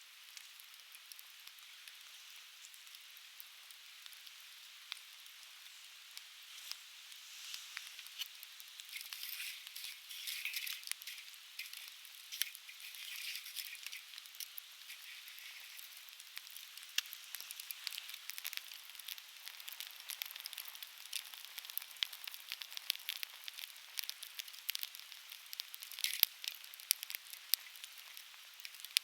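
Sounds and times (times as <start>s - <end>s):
steady fire hiss: 0.0s - 29.0s
campfire crackling: 0.1s - 29.0s
sharp pops and snaps: 7.7s - 29.0s.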